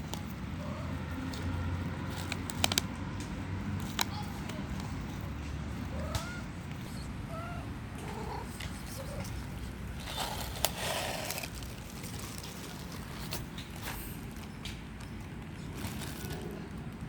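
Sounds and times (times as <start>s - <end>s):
cats meowing: 5.5s - 10.2s
rustling noise: 8.0s - 14.6s.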